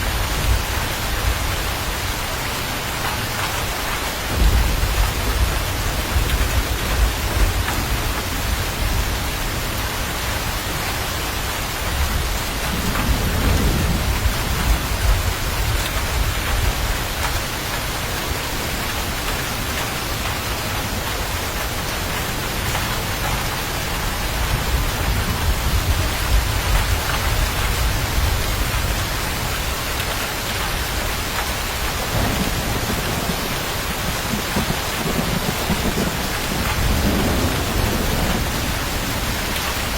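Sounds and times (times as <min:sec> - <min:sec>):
heavy rain falling: 0:00.0 - 0:39.9
low rolling thunder: 0:04.2 - 0:09.8, 0:11.9 - 0:17.3, 0:22.8 - 0:29.5, 0:32.0 - 0:39.9.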